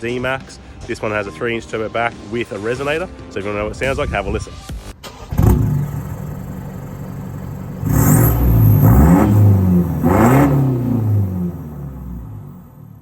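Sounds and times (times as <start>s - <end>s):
diesel engine idling and revving: 5.1s - 13.0s.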